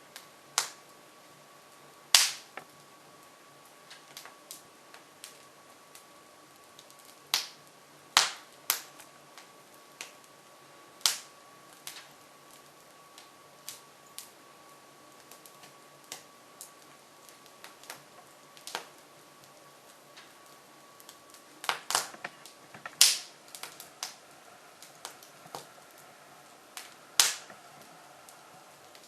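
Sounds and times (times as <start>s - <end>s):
logs crackling in wood stove: 0.0s - 29.0s
sharp pops and snaps of wood: 0.6s - 0.8s, 2.2s - 2.7s, 7.3s - 7.6s, 8.2s - 9.0s, 11.0s - 11.3s, 21.0s - 24.2s, 26.8s - 27.6s.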